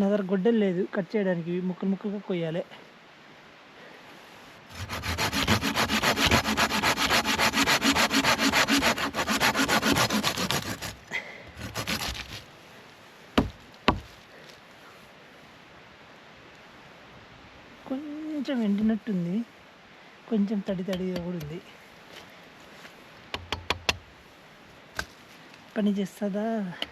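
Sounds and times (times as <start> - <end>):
hand saw cutting log: 4.7 - 12.4.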